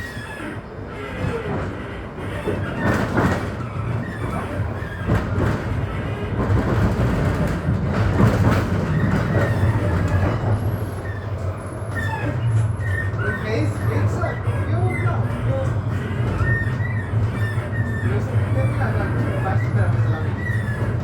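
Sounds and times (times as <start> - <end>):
tram hum: 0.0 - 21.0
wheels rattling on rails: 0.0 - 21.0
wheel squeals: 8.2 - 21.0.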